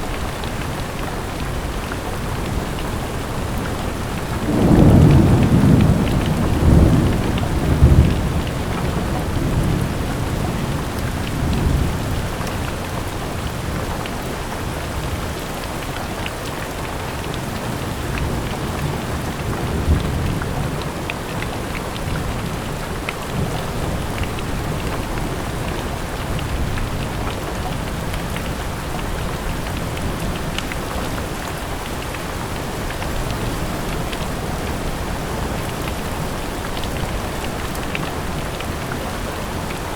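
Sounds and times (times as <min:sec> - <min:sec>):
raindrops ticking: 0:00.0 - 0:39.9
steady rain falling: 0:00.0 - 0:39.9
thunder rumbling: 0:02.6 - 0:12.2.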